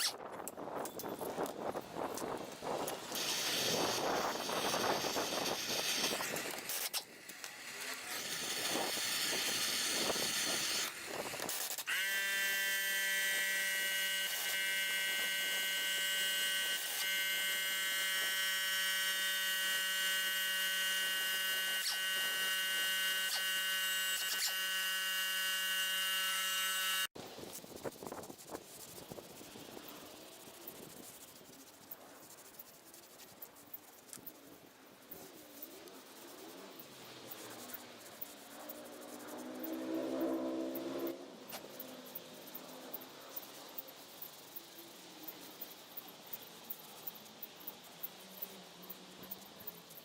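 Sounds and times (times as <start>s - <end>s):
small electric motor buzzing: 0.0s - 0.2s, 0.8s - 27.2s, 35.4s - 44.7s.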